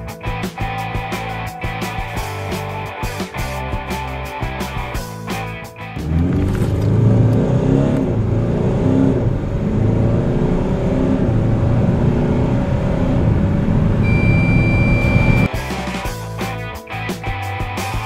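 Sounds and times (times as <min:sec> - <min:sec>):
car engine at full throttle: 0:05.8 - 0:15.5
steady electronic beep: 0:14.0 - 0:15.5.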